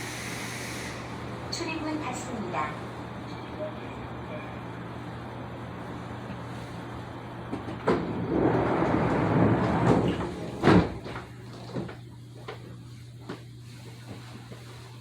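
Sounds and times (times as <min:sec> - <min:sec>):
train doors rushing air: 0:00.0 - 0:01.3, 0:07.5 - 0:11.2
train car low hum: 0:00.0 - 0:15.0
train door thud: 0:07.5 - 0:11.9.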